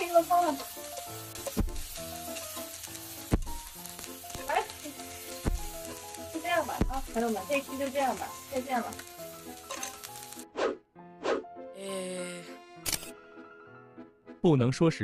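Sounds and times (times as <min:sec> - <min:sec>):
chopsticks stirring food: 0:00.0 - 0:10.4
food sizzling in a frying pan: 0:00.0 - 0:10.5
background music: 0:00.0 - 0:15.0.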